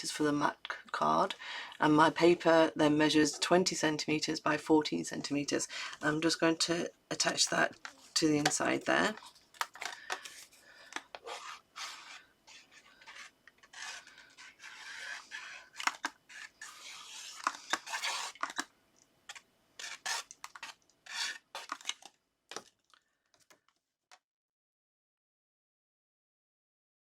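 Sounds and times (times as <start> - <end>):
card scraping: 7.2 - 18.7, 19.3 - 22.1.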